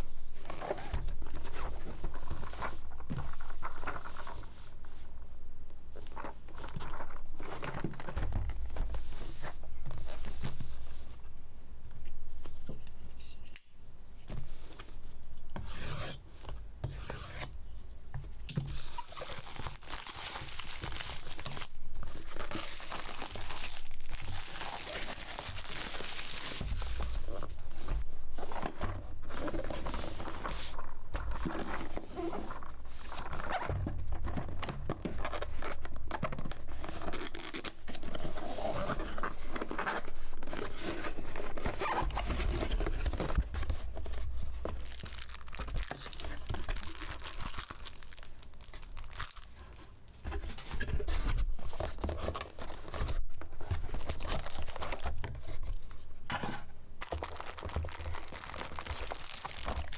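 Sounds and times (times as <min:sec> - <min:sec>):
paper and plastic crinkling: 0:18.7 - 0:59.9.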